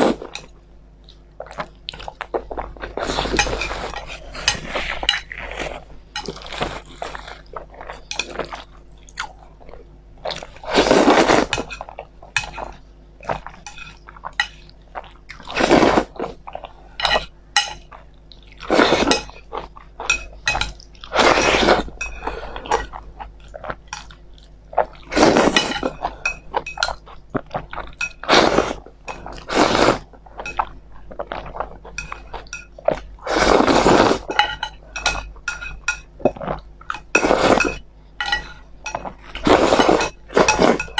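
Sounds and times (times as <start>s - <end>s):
person chewing: 0.0s - 40.9s
utensils clinking on a dish: 3.1s - 5.4s, 11.4s - 14.6s, 17.0s - 17.9s, 19.0s - 23.0s, 25.2s - 27.0s, 30.4s - 30.8s, 31.6s - 33.1s, 34.2s - 40.9s.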